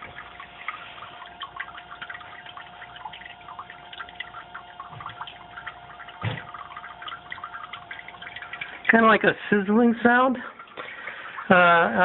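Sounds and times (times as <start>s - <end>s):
water dripping and gurgling: 0.0s - 12.0s.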